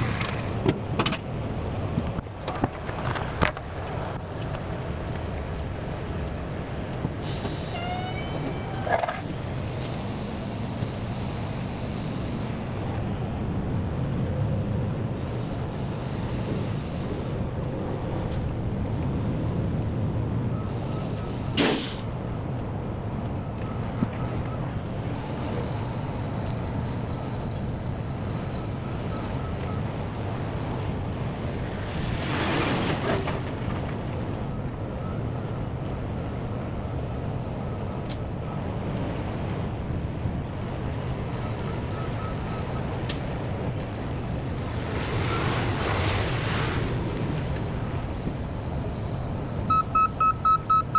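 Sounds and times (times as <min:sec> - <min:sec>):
air hiss: 0:21.6 - 0:22.1
faint high beeps: 0:49.1 - 0:50.9.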